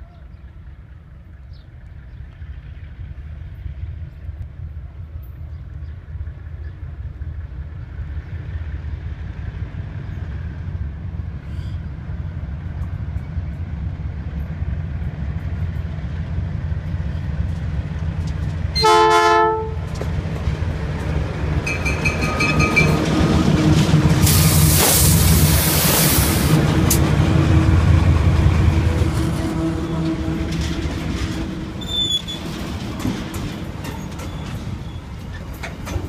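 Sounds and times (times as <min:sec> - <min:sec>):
diesel locomotive engine rumble: 0:00.0 - 0:36.0
train horn blast: 0:18.8 - 0:19.9, 0:28.6 - 0:32.2
wheels on rails: 0:19.8 - 0:36.0
thin high squeal: 0:31.8 - 0:32.4.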